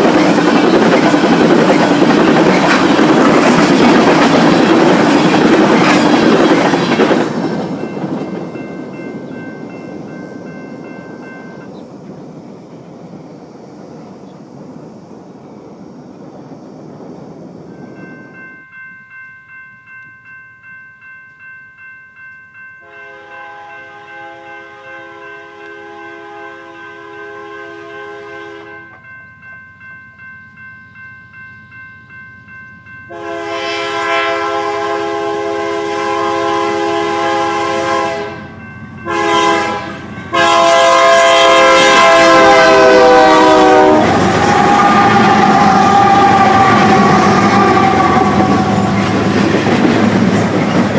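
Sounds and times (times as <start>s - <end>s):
crossing bell ringing: 0.0s - 11.8s, 17.7s - 50.9s
train rumble: 0.0s - 50.9s
locomotive horn: 22.8s - 29.0s, 33.1s - 49.2s.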